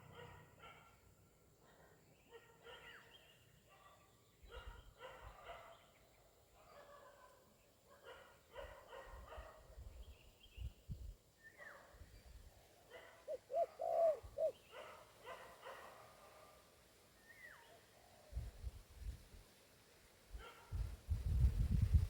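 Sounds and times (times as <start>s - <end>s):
dog barking: 0.0s - 5.9s, 6.5s - 9.8s, 12.9s - 16.7s, 20.4s - 20.8s
dove cooing: 13.3s - 14.6s.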